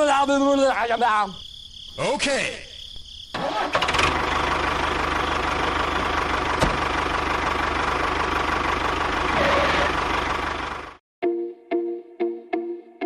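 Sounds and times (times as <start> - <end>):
small tractor engine running: 3.4 - 11.0.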